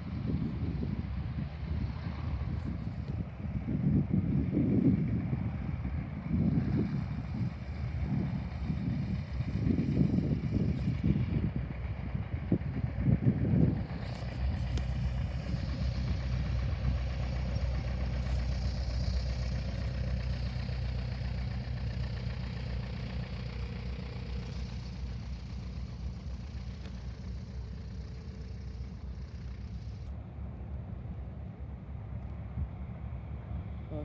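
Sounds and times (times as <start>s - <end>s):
aircraft engine humming: 0.0s - 34.0s.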